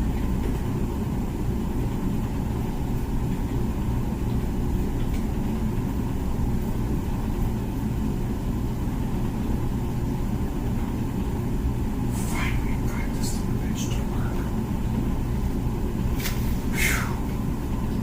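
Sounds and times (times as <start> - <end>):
dishwasher rumble and hum: 0.0 - 18.0.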